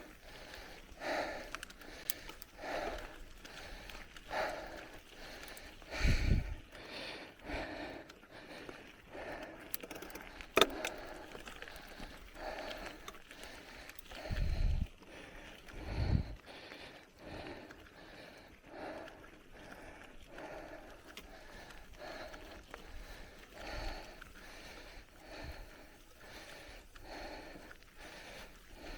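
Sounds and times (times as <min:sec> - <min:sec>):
bicycle tyre and frame noise: 0:00.0 - 0:28.9
wind buffeting microphone: 0:05.9 - 0:06.7, 0:14.2 - 0:14.9, 0:15.8 - 0:16.4.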